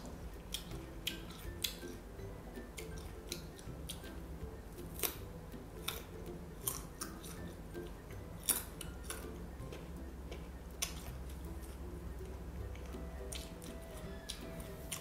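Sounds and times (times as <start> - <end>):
crunching of fruit slices: 4.8 - 11.9.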